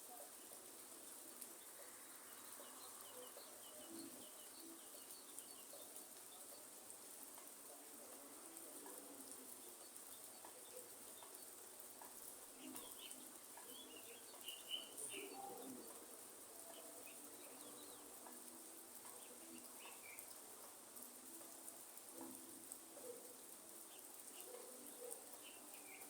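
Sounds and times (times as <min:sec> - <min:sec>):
light rain hiss: 0:00.0 - 0:26.0
bird chirps and calls: 0:12.6 - 0:15.8, 0:23.9 - 0:26.0.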